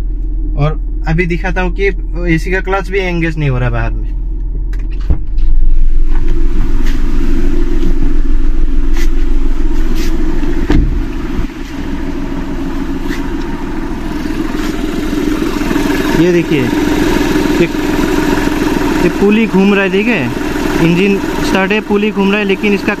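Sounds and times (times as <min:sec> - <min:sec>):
diesel engine idling: 0:00.0 - 0:05.0, 0:05.7 - 0:23.0
car door shutting: 0:09.9 - 0:11.8.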